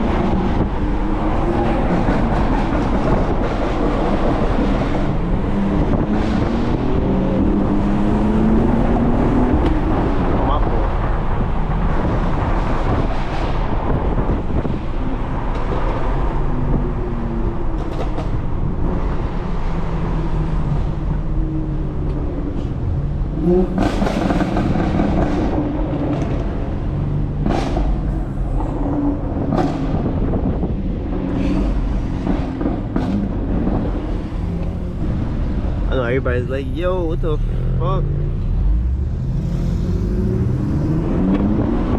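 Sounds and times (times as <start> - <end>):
car engine revving: 0.0 - 17.8, 18.4 - 41.9.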